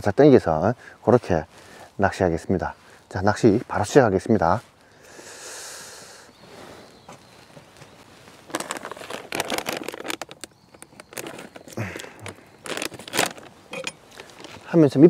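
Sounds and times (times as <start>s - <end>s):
soft rushing hiss: 0.0s - 8.5s
rustles and clicks: 7.0s - 15.0s.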